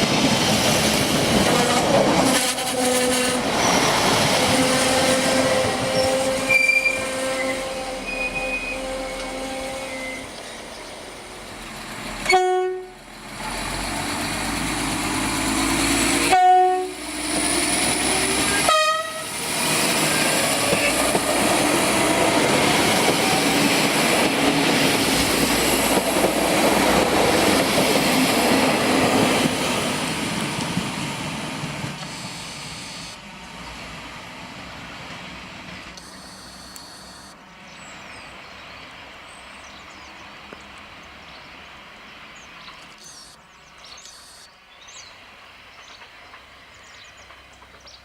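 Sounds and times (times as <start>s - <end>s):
train wheels rumbling on rail: 0.0s - 36.0s, 44.8s - 48.0s
train horn blasts: 4.3s - 10.3s, 12.2s - 13.0s, 16.2s - 17.1s, 18.5s - 19.4s.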